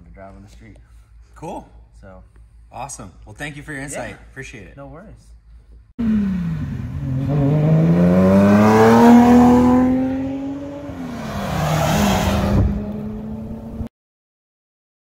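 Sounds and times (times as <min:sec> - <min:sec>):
cars accelerating past: 0:06.0 - 0:13.9.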